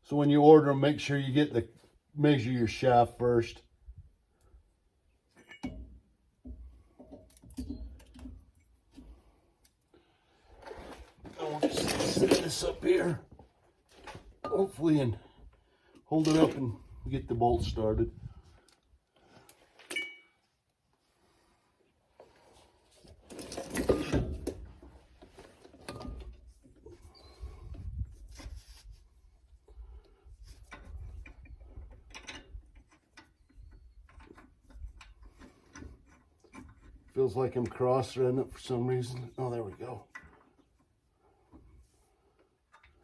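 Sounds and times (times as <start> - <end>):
faint clicks and knocks of parts: 4.3 - 11.4, 18.4 - 21.1, 27.7 - 43.0
metal clinking and scraping: 10.6 - 13.1
ringing metallic clinks: 19.9 - 20.4.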